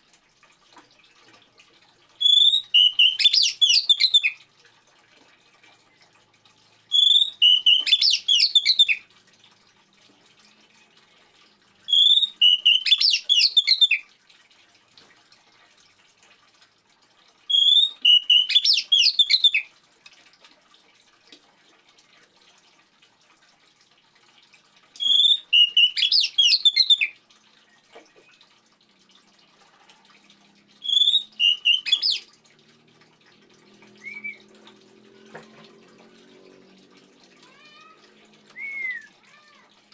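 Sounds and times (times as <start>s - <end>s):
faint trickling water: 0.0s - 39.9s
songbird singing high quick notes: 2.2s - 4.3s, 7.0s - 9.0s, 12.0s - 14.0s, 25.0s - 27.1s, 30.8s - 32.2s.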